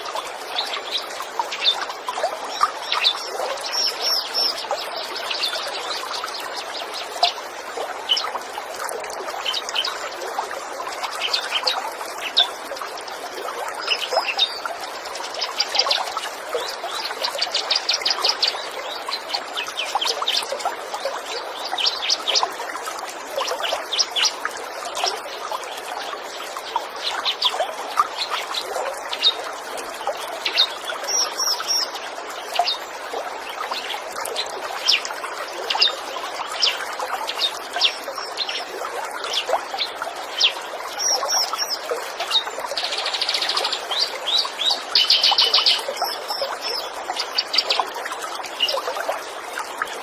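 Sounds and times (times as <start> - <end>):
small birds chirping: 0.0 - 7.4
water trickling: 0.0 - 50.0.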